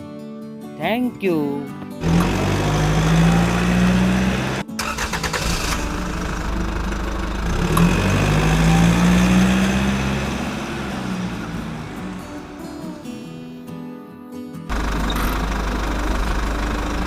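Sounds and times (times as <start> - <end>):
vehicle engine running: 2.0 - 13.1, 14.7 - 17.0.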